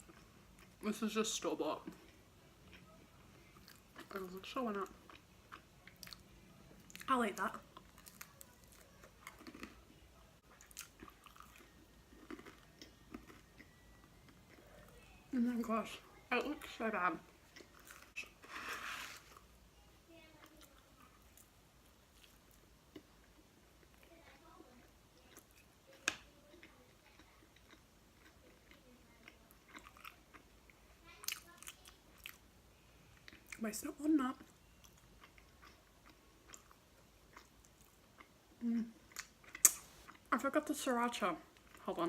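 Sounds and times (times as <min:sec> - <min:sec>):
chewing pizza: 0:00.0 - 0:19.5, 0:20.1 - 0:40.5
chewing with wet mouth clicks: 0:04.8 - 0:07.1, 0:10.4 - 0:15.0, 0:25.2 - 0:32.4, 0:34.4 - 0:38.4, 0:39.0 - 0:40.3
pizza crust crunch: 0:17.5 - 0:19.5.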